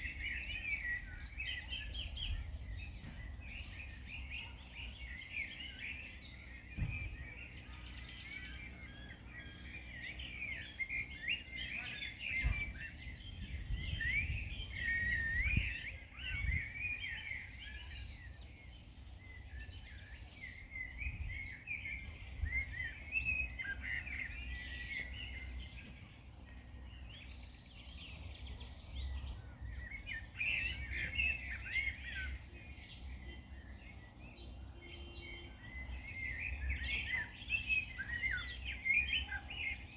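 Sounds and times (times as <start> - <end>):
songbirds chirping and singing: 0.0 - 39.9
wind rumble and gusts: 6.2 - 34.2.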